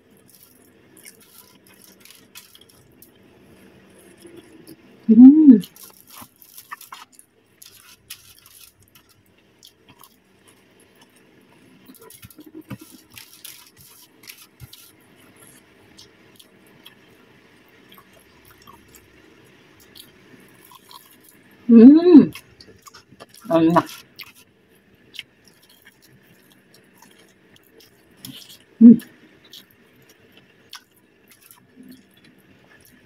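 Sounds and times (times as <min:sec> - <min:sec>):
chewing crunchy food: 0:00.1 - 0:04.9, 0:05.6 - 0:17.2, 0:17.8 - 0:21.5, 0:22.3 - 0:33.0
person humming: 0:05.1 - 0:05.6, 0:21.7 - 0:22.3, 0:28.8 - 0:29.0.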